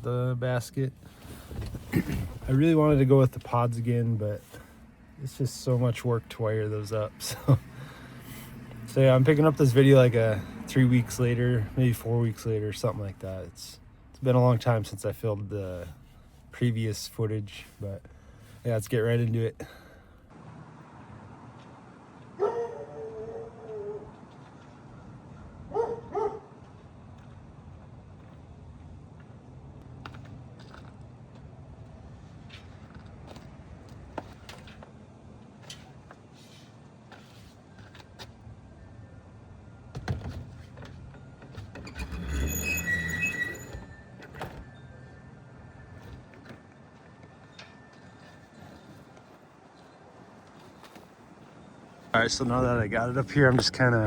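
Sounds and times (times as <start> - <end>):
dog yipping: 22.4 - 24.1, 25.7 - 26.5
metal scraping with squeal: 41.9 - 46.1.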